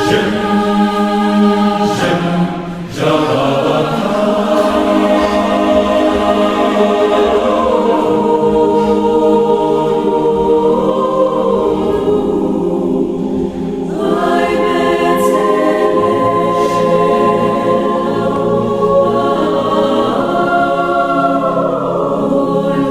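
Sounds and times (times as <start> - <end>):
choir singing sustained notes: 0.0 - 22.9.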